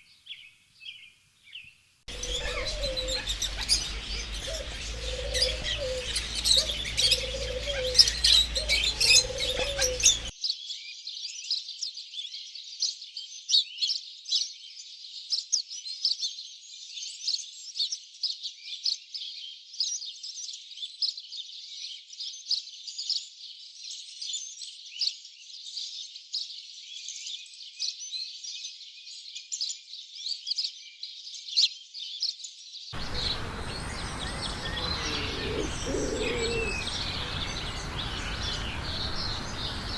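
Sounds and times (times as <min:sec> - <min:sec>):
small birds chirping: 0:00.0 - 0:39.9
low repeated call: 0:33.0 - 0:39.9.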